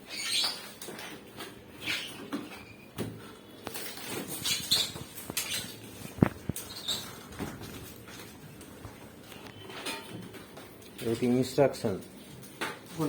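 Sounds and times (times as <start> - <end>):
packing materials rustling: 3.2 - 13.0.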